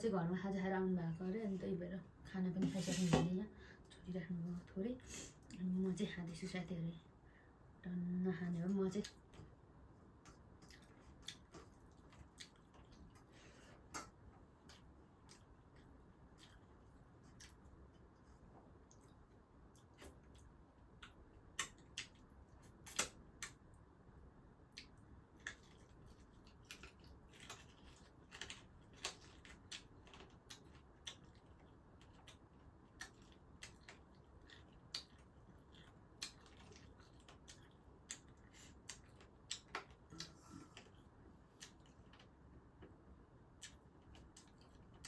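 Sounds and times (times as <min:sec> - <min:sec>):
eating clicks and smacks: 0:10.2 - 0:18.0, 0:18.8 - 0:23.7, 0:24.7 - 0:45.0.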